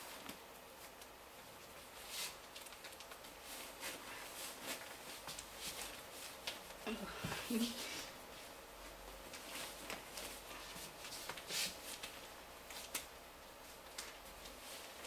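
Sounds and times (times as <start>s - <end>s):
fabric rustling and brushing: 3.2s - 6.8s, 7.4s - 15.0s.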